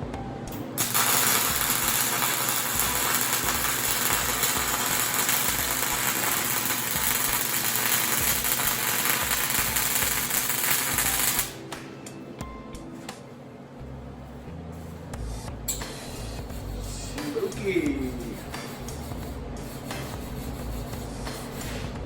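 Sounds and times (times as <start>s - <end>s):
welding arc: 0.8s - 11.6s.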